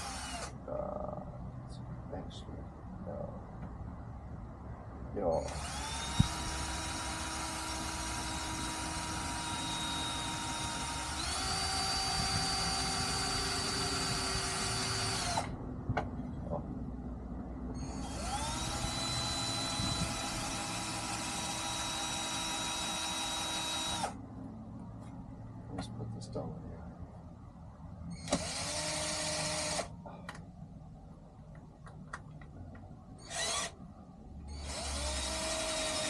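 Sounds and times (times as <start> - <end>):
electric drill running: 0.0 - 0.5, 5.5 - 15.5, 17.8 - 24.2, 28.3 - 29.9, 33.2 - 33.8, 34.5 - 36.0.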